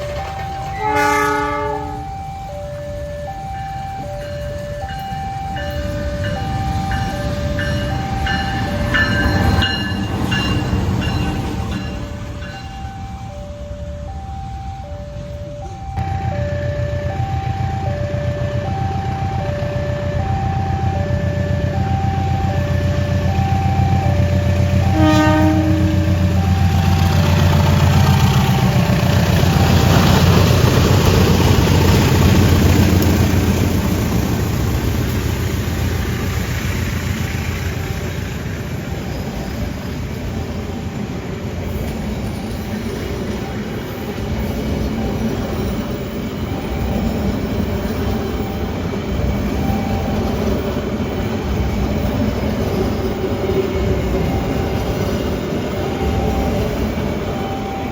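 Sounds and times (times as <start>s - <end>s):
level crossing alarm: 0.0s - 38.3s, 42.4s - 57.9s
diesel locomotive droning: 0.0s - 57.9s
train wheels rolling: 0.0s - 57.9s
train horn blast: 0.6s - 2.2s, 24.7s - 27.9s.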